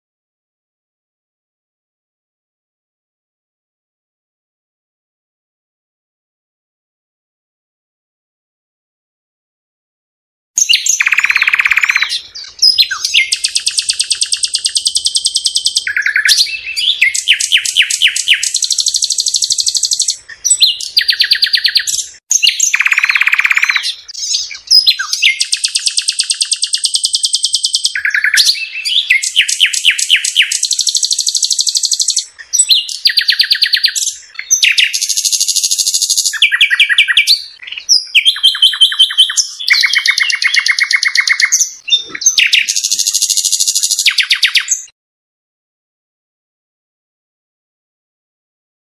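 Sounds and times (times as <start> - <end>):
songbird singing trills: 10.6 - 44.9.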